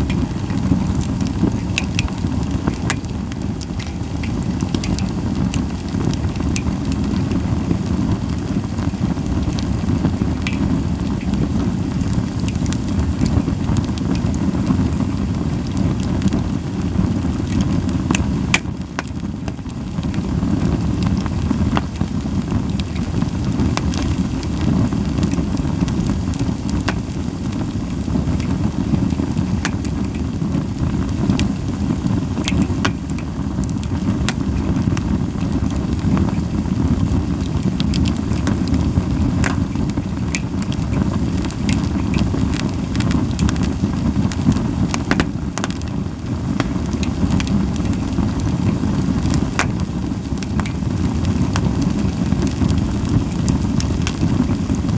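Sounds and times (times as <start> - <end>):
fire low rumble: 0.0 - 54.9
firewood crackling and popping: 0.0 - 54.9.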